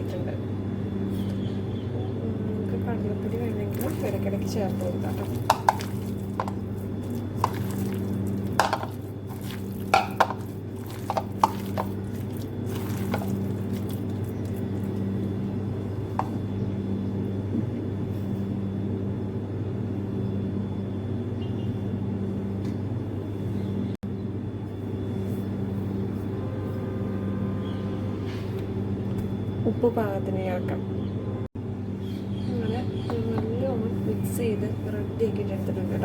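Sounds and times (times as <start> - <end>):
steady low hum: 0.0 - 36.0
batter squelching: 3.2 - 16.4.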